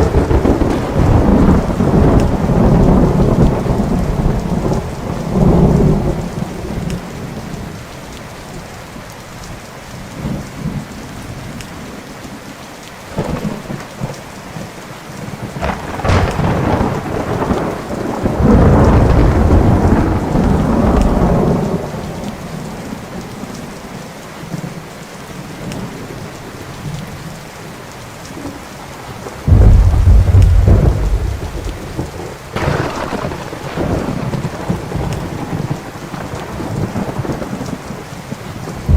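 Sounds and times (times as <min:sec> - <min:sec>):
thunder rumbling: 0:00.0 - 0:07.7, 0:15.5 - 0:22.9, 0:29.3 - 0:38.9
steady rain: 0:00.0 - 0:38.9.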